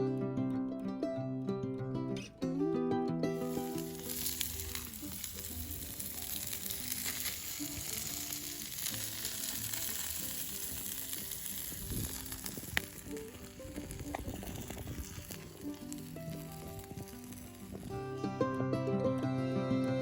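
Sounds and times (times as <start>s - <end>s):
meat sizzling over a fire: 3.4s - 18.2s.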